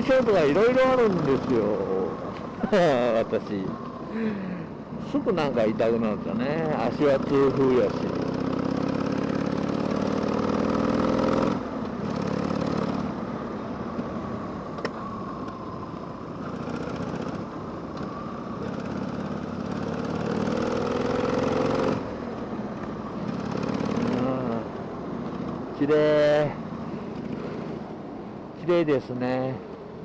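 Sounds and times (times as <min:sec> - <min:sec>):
motorcycle engine revving: 0:00.0 - 0:02.1, 0:06.1 - 0:13.2, 0:16.4 - 0:17.5, 0:18.6 - 0:22.4, 0:23.1 - 0:25.6, 0:27.1 - 0:27.8
road and wind noise: 0:00.0 - 0:30.0.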